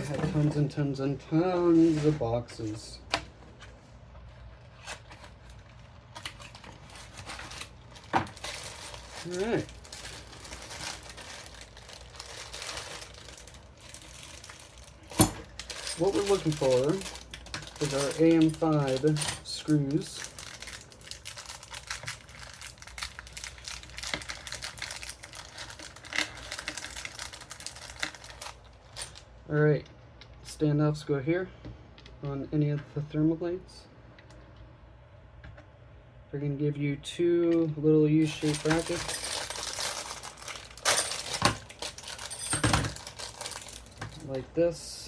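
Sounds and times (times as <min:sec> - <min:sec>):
cardboard and plastic rustling: 0:00.0 - 0:29.2, 0:38.2 - 0:44.4
plastic bags crinkling: 0:05.0 - 0:29.3, 0:38.2 - 0:44.4.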